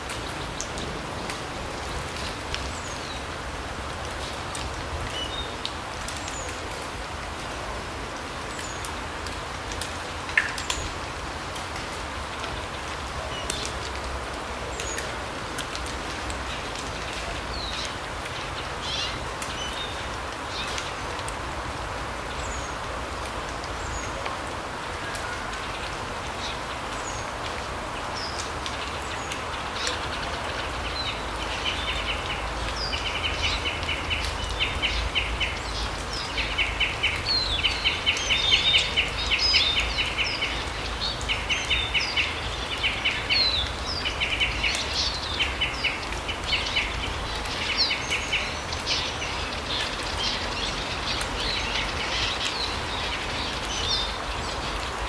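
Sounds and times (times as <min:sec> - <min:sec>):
forest birds chirping and trilling: 0:28.0 - 0:55.0.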